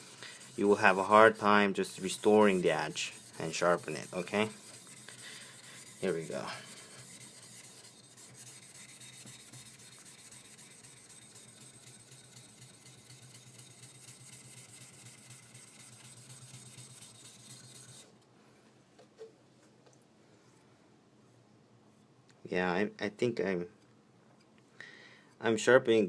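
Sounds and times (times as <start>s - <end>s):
knife scraping on whetstone: 0.0s - 18.1s.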